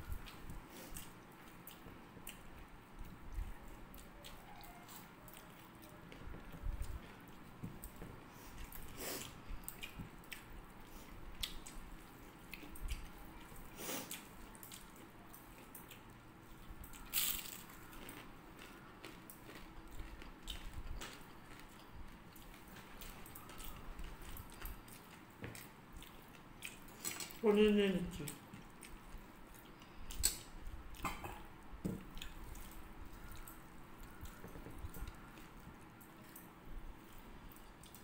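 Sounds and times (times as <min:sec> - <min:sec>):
chewing and lip smacks: 0:00.2 - 0:27.4, 0:28.2 - 0:38.0.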